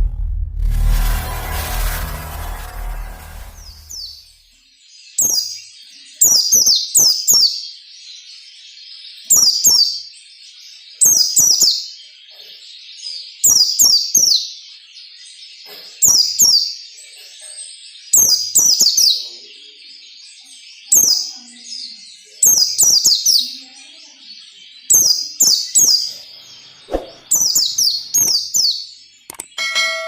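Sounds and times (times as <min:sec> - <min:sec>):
bird whistling high falling notes: 0:00.8 - 0:04.4.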